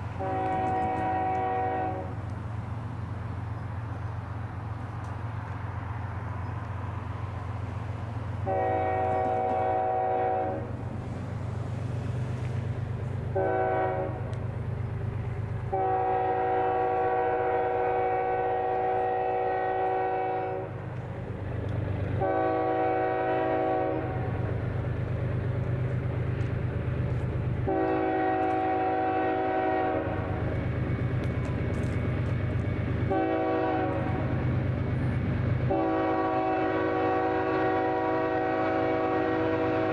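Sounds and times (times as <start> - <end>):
low locomotive rumble: 0.0 - 39.9
locomotive air horn blasts: 0.1 - 2.2, 8.4 - 10.8, 13.3 - 14.3, 15.7 - 20.8, 22.2 - 24.4, 27.6 - 30.4, 33.0 - 34.3, 35.7 - 39.9.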